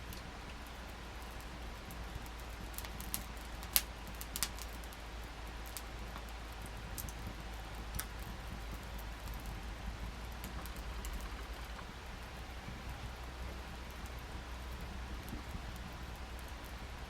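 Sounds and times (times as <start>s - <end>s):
burning wood popping: 0.0s - 17.0s
wood fire crackling: 0.0s - 17.0s.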